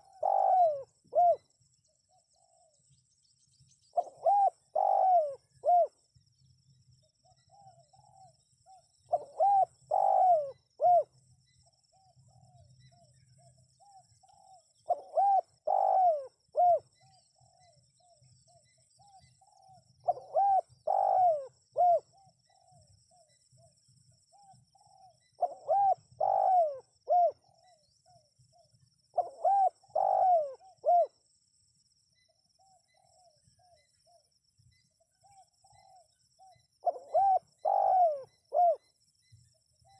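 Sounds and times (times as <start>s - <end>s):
dove cooing: 0.0s - 1.5s, 3.9s - 6.0s, 7.3s - 11.2s, 11.9s - 23.3s, 24.3s - 31.2s, 35.2s - 38.9s.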